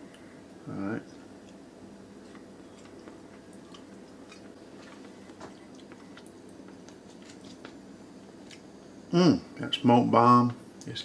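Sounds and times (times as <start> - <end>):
faint steady hum: 0.0 - 11.0
person chewing meat: 1.2 - 8.7.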